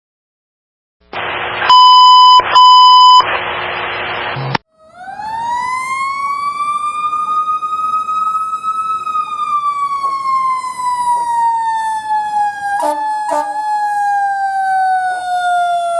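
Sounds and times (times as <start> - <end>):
electronic horn tones: 1.6 - 3.2, 12.8 - 13.6
loud rough horn blast: 12.8 - 13.6.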